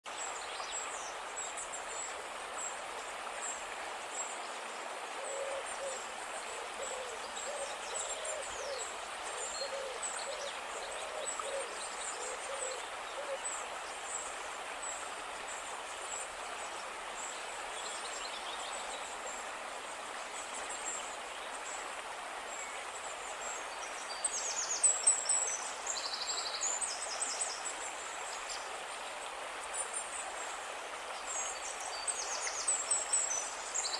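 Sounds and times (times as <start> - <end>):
steady hiss: 0.1 - 33.9.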